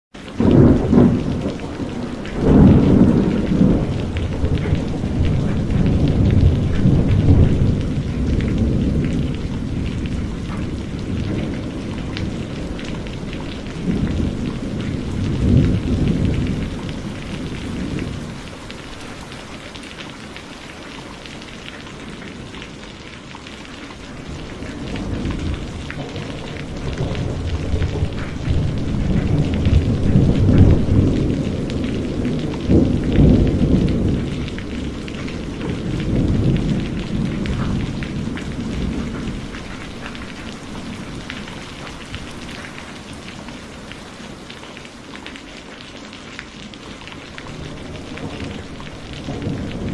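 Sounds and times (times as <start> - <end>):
heavy rain: 0.1 - 49.9
thunder rumbling: 0.2 - 44.9, 46.8 - 49.9.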